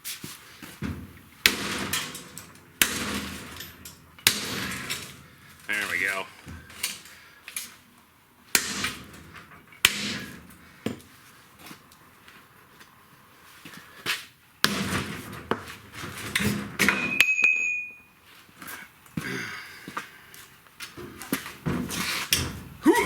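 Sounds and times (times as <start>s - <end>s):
metal clattering and scraping: 0.5s - 7.8s, 8.5s - 10.8s, 14.7s - 17.2s, 20.9s - 22.9s
high metallic ring: 16.9s - 18.2s.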